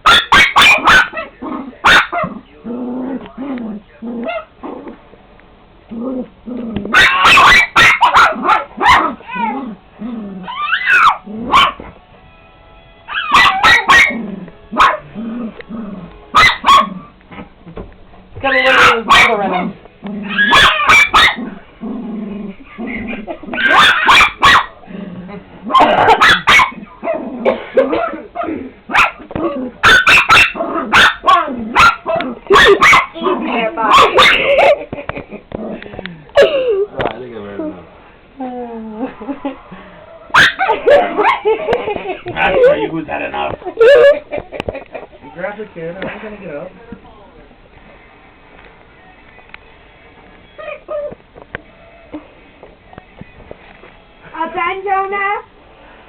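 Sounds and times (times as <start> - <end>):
dog barking and yipping: 0.0 - 2.4, 6.9 - 9.6, 10.4 - 11.9, 13.1 - 14.2, 14.8 - 15.0, 16.3 - 17.5, 18.5 - 21.5, 23.5 - 24.8, 25.7 - 27.2, 27.9 - 34.8, 40.2 - 41.6
dog whining: 6.0 - 11.8, 13.1 - 14.2, 18.4 - 21.6, 22.5 - 34.8, 38.4 - 41.5, 50.4 - 51.2.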